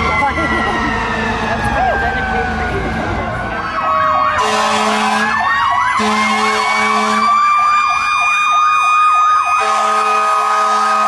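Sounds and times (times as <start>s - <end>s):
electronic siren yelping: 0.0s - 11.0s
fire truck air horns: 3.0s - 7.8s, 9.5s - 11.0s.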